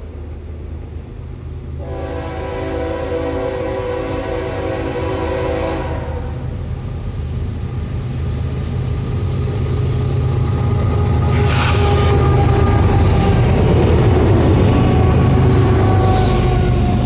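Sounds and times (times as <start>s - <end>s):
diesel engines rumbling: 0.0s - 17.0s
locomotive air horn chord: 1.8s - 6.6s, 11.2s - 12.9s
loud hiss: 11.2s - 12.4s.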